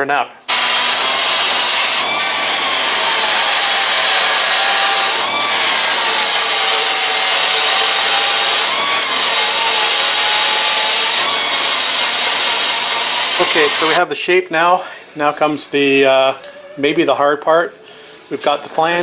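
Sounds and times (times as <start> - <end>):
air tool cutting sheet metal: 0.5 - 14.0.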